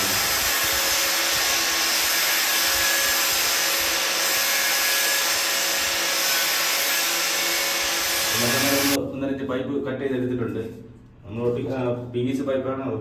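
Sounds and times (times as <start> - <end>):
power tool cutting pipe: 0.0 - 9.0.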